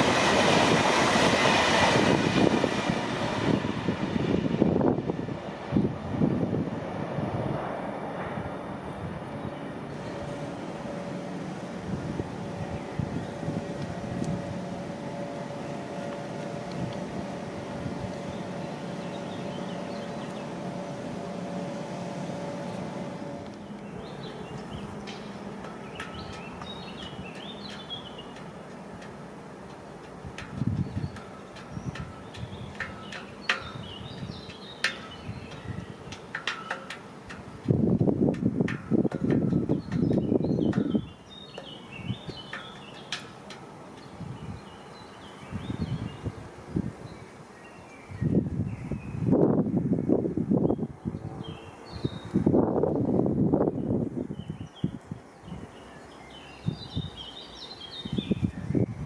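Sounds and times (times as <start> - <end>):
train rumbling: 0.0 - 46.9
birds chirping: 17.6 - 20.9, 23.6 - 37.8, 39.4 - 49.3, 53.8 - 59.0.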